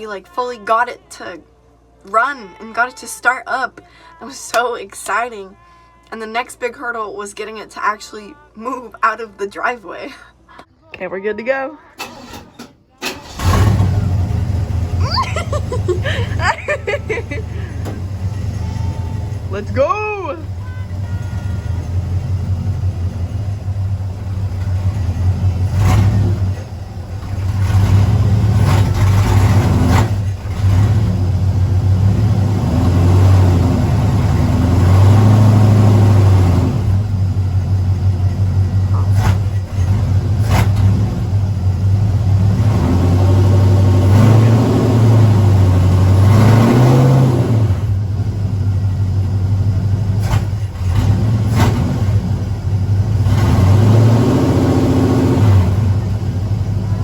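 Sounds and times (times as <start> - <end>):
pickup engine revving: 13.1 - 57.0.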